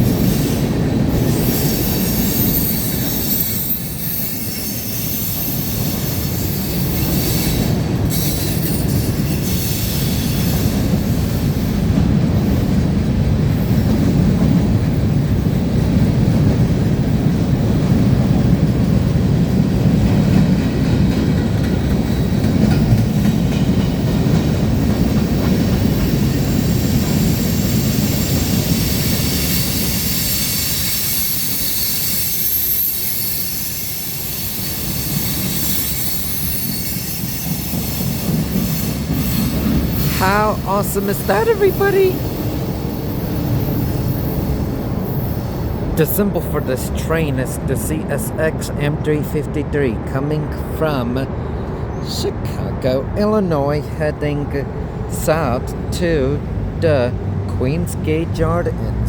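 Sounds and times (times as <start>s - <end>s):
train wheels rumbling on rails: 0.0s - 59.0s
high squeal: 1.4s - 10.7s, 27.5s - 40.2s.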